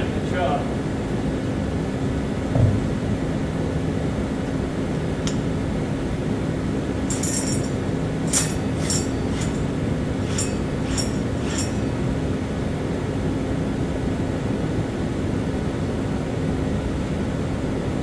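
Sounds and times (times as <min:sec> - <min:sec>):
light metallic clinks: 0:07.0 - 0:12.2
steady motor drone: 0:07.1 - 0:12.2.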